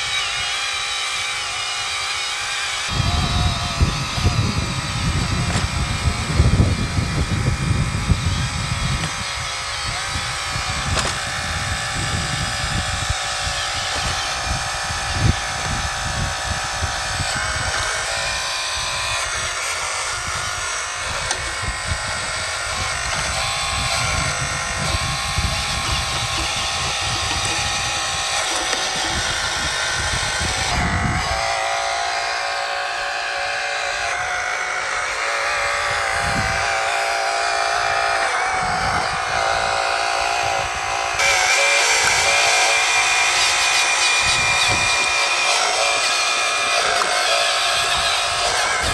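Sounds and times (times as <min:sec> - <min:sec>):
toy excavator motors whining: 0:00.0 - 0:48.9
wind buffeting microphone: 0:02.9 - 0:31.6, 0:35.5 - 0:36.9, 0:37.7 - 0:45.4, 0:47.6 - 0:48.9.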